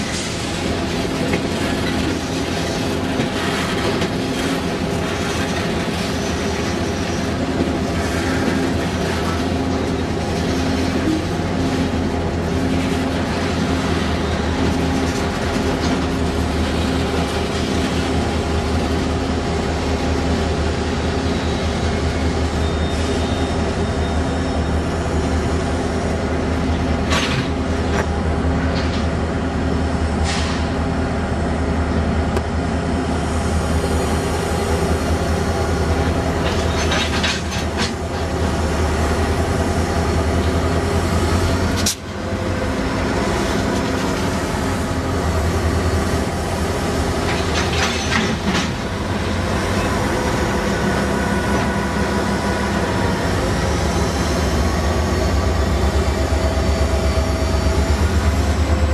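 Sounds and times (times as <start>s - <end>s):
diesel locomotive engine drone: 0.0s - 58.9s
metallic wheel squeals and clanks: 21.4s - 24.9s.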